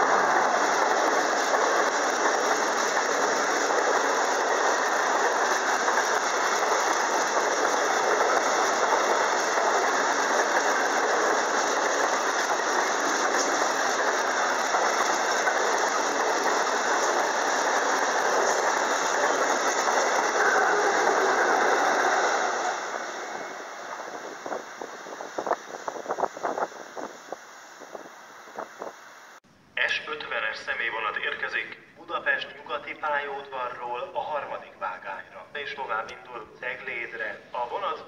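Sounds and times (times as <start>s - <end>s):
railway wagons rolling past: 0.0s - 28.9s.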